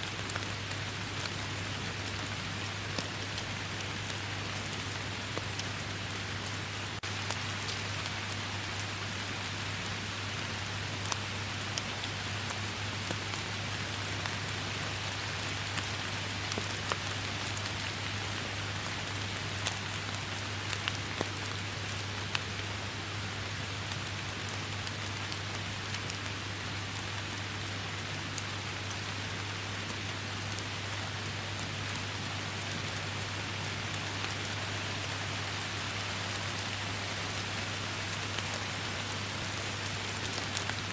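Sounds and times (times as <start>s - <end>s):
steady rain hiss: 0.0s - 40.9s
raindrops ticking: 0.1s - 9.4s, 10.9s - 23.2s, 31.5s - 40.9s.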